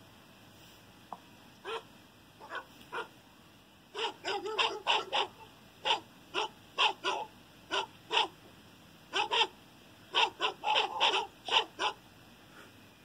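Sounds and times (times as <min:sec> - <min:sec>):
dog barking: 0:01.6 - 0:03.1, 0:03.9 - 0:08.4, 0:09.1 - 0:12.0.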